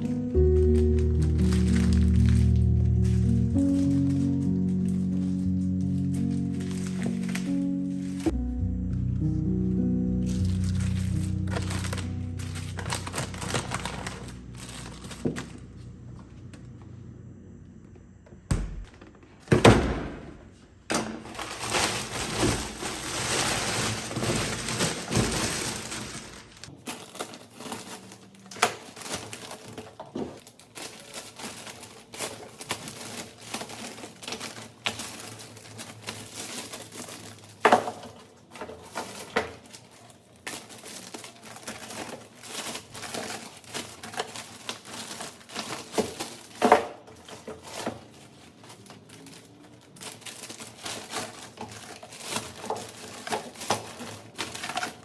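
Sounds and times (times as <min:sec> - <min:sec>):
packaging crinkling: 0:00.0 - 0:08.4, 0:09.4 - 0:16.2, 0:21.1 - 0:55.0
rustling: 0:00.0 - 0:08.4, 0:10.1 - 0:16.6, 0:20.5 - 0:55.0.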